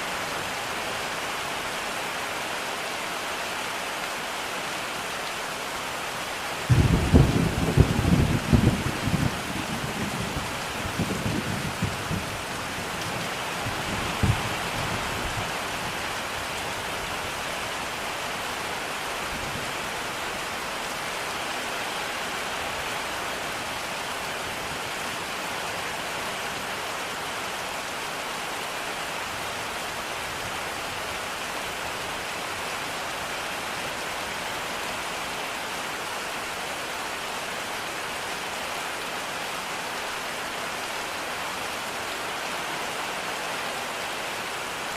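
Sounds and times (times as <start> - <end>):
rain pouring: 0.0 - 44.9
thunder rumbling: 6.7 - 12.5.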